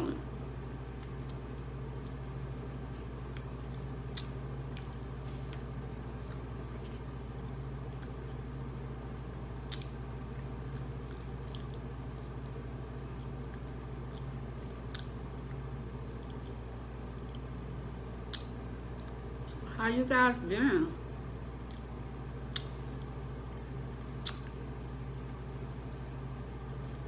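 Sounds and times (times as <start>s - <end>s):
person chewing: 0.6s - 8.4s, 9.6s - 17.5s, 21.3s - 27.0s
wet mouth sounds: 24.2s - 24.6s.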